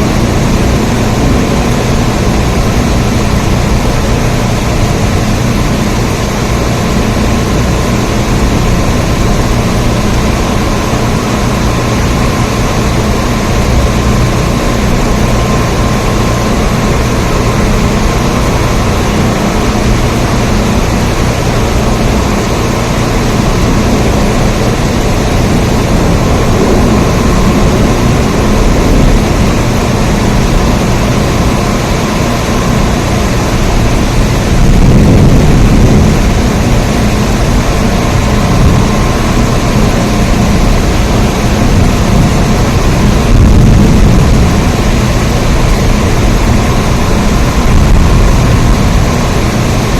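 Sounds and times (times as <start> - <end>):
steady rain: 0.0 - 49.9.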